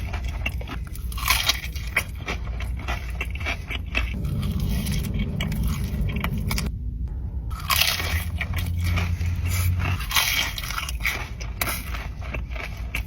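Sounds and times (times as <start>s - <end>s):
crunchy chewing of crisp food: 0.0s - 6.7s, 7.6s - 13.0s.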